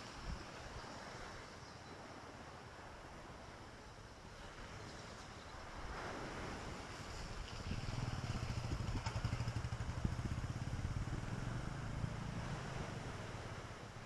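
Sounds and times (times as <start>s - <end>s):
lake waves: 0.0s - 14.0s
wind: 0.0s - 14.0s
small engine humming: 7.7s - 13.3s.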